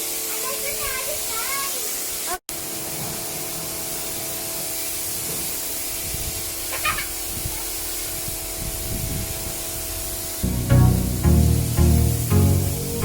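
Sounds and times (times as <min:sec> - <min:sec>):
pressure washer spraying water: 0:00.0 - 0:13.0
motor hum: 0:02.6 - 0:13.0
music with a beat: 0:10.4 - 0:13.0.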